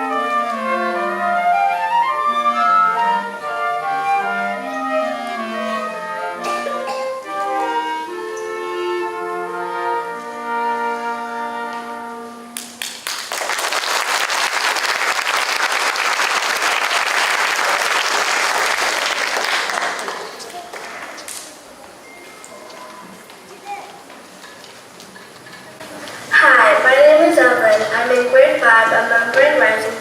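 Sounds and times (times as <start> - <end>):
audience applause: 12.6 - 21.4.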